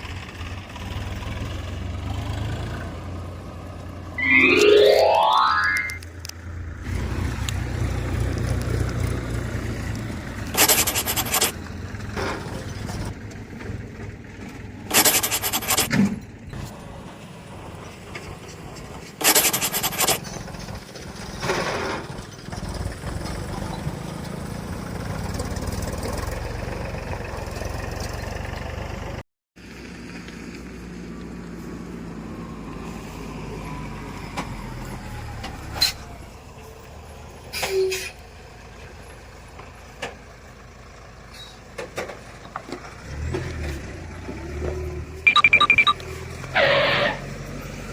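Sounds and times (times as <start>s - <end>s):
vehicle engine running: 7.9s - 15.9s
short loud noise bursts: 14.9s - 15.9s, 19.2s - 20.2s.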